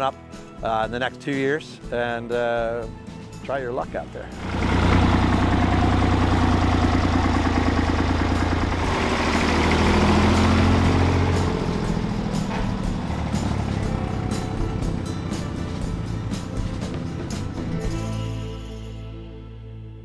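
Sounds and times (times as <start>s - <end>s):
tractor diesel engine running: 4.2s - 18.9s.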